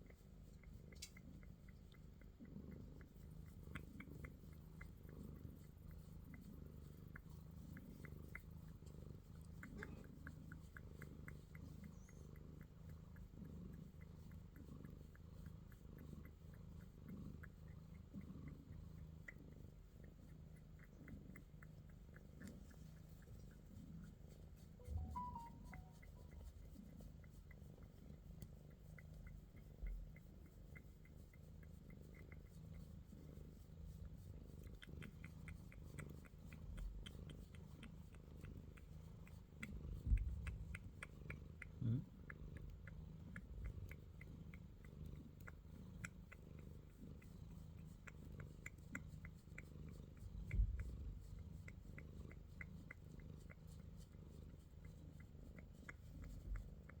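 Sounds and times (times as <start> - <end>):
cat purring: 0.0 - 57.0
soft low thumps: 40.0 - 40.7.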